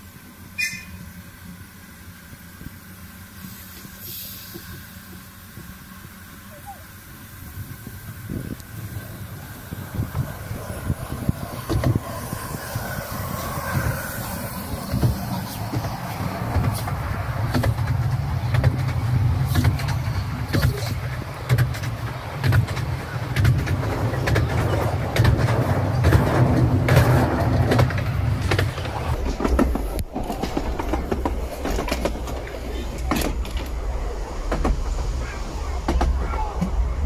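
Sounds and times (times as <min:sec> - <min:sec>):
train carriages rumbling past: 0:00.0 - 0:37.0
wheel clacks over rail joints: 0:09.7 - 0:36.9.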